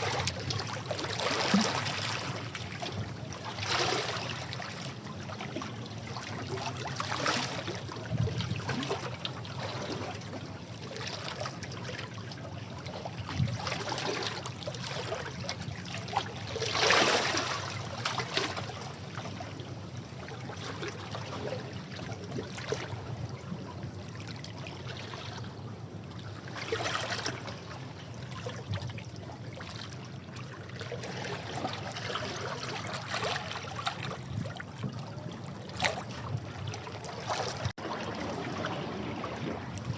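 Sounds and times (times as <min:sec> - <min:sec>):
sea waves washing against rocks: 0:37.6 - 0:39.9.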